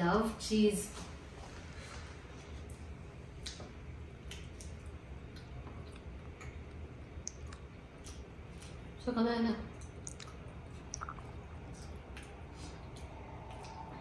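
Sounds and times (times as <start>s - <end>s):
low room hum: 0.0s - 14.0s
person chewing with mouth closed: 2.5s - 8.9s, 9.7s - 14.0s.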